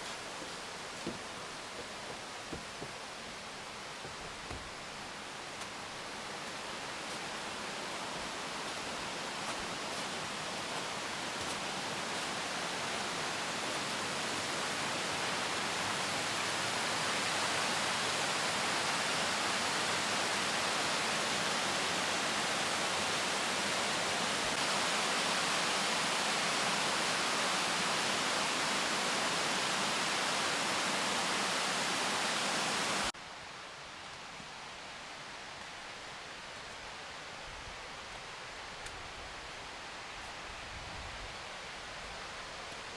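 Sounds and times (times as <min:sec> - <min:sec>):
waterfall rushing: 0:04.8 - 0:33.1.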